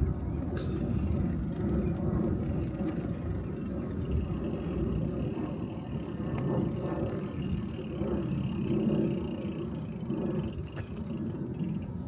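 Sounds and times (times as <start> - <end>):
bicycle rolling: 0.0 - 12.0
wind buffeting microphone: 0.0 - 12.0.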